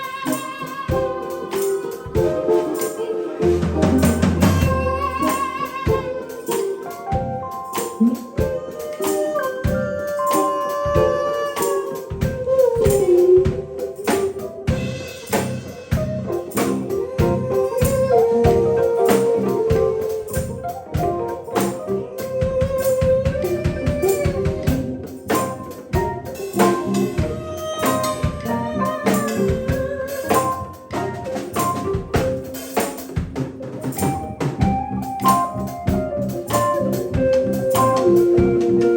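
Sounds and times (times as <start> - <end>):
drum kit: 0.0 - 38.9
organ: 0.0 - 38.9
sliding melody line: 0.0 - 38.9
tambourine: 0.0 - 38.9.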